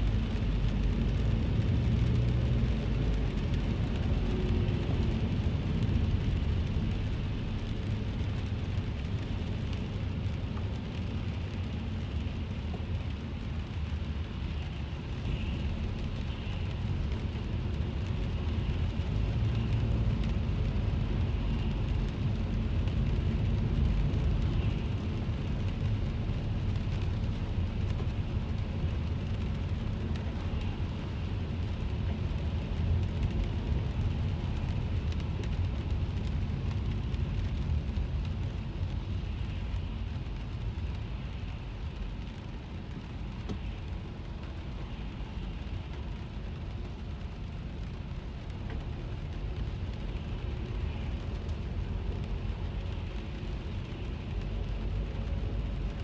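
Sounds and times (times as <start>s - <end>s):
car rumbling on wet road: 0.0s - 56.0s
rain pattering on car: 0.0s - 56.0s.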